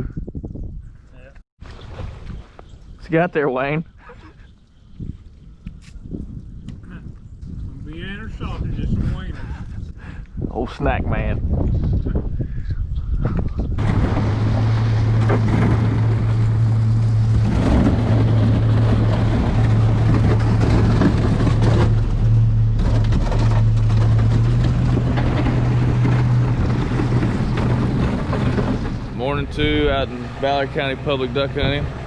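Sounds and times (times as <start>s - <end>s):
motor engine humming: 13.6s - 32.0s.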